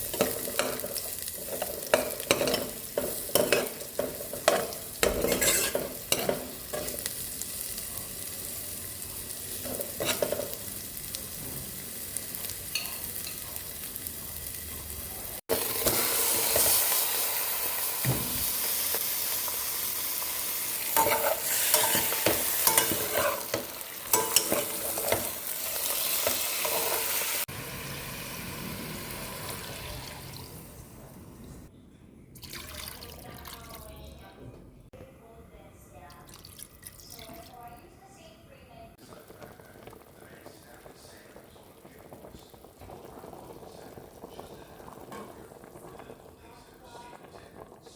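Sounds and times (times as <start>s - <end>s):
utensil stirring: 0.0s - 7.1s, 21.0s - 27.2s
food sizzling in a frying pan: 0.0s - 31.7s, 38.9s - 47.9s.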